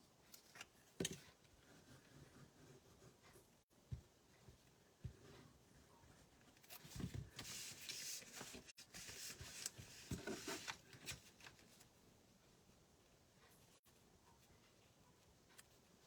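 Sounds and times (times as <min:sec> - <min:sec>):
paper rustling: 0:06.6 - 0:11.8.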